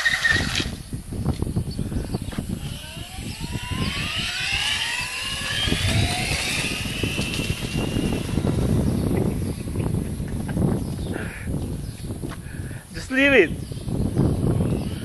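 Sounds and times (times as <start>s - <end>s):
electric motor whining: 0.0s - 11.0s
low rumble: 0.5s - 11.9s.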